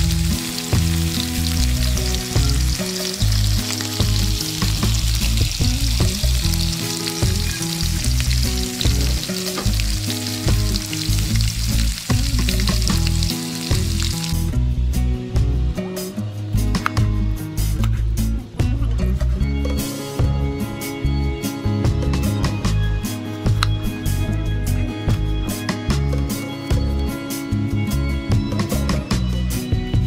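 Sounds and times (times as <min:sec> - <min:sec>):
frogs sizzling in hot oil: 0:00.0 - 0:14.5
background music with bass line: 0:00.0 - 0:30.0.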